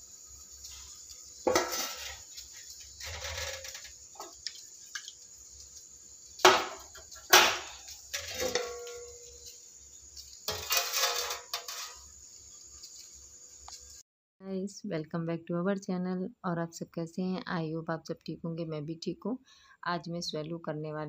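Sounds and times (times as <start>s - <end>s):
cookware clattering: 1.5s - 2.2s, 6.5s - 9.3s, 10.5s - 12.0s.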